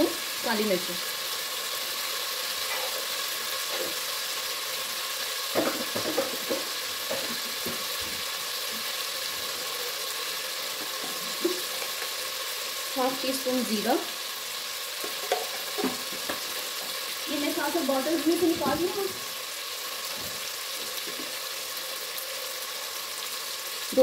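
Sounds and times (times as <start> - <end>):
food sizzling in oil: 0.0 - 24.0.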